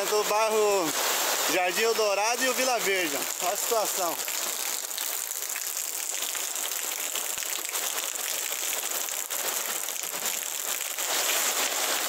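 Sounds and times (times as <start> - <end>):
heavy rain falling: 0.0 - 12.0
runoff water rushing: 0.0 - 12.0.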